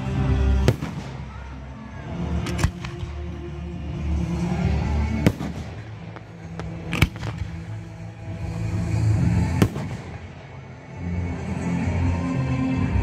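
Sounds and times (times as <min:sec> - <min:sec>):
background music: 0:00.0 - 0:13.0
fireworks bangs: 0:00.6 - 0:01.5, 0:05.0 - 0:08.1, 0:09.3 - 0:10.6
fireworks cracks: 0:00.6 - 0:01.5, 0:05.1 - 0:08.1, 0:09.4 - 0:10.6.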